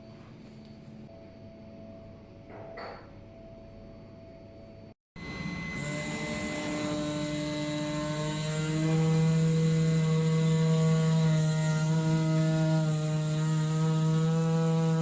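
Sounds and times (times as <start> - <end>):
cutting machine humming: 5.2 - 15.0.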